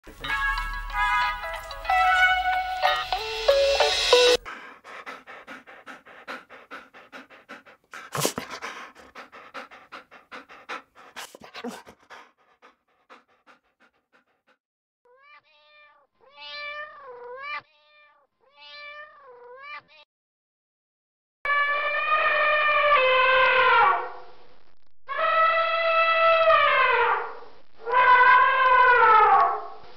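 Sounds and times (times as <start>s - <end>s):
small dog panting: 0.2s - 14.6s.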